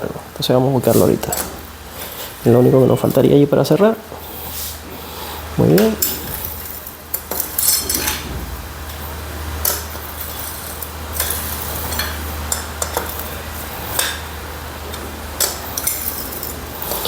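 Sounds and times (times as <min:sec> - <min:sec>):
steady low hum: 0:00.0 - 0:17.0
metal bolts and tools clinking: 0:00.9 - 0:01.6, 0:05.7 - 0:08.4, 0:14.9 - 0:17.0.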